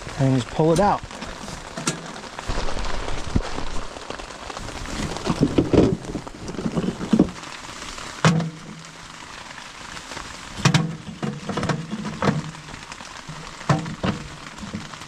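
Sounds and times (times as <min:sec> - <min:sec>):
heavy rain falling: 0:00.0 - 0:15.0
rustling and knocking of handling: 0:04.9 - 0:07.4, 0:10.6 - 0:12.7, 0:13.3 - 0:15.0.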